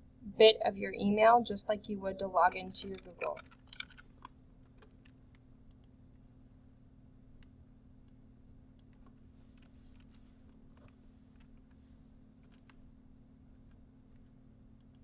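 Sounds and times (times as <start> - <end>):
low electrical hum: 0.0 - 15.0
keyboard keystrokes: 2.7 - 4.0.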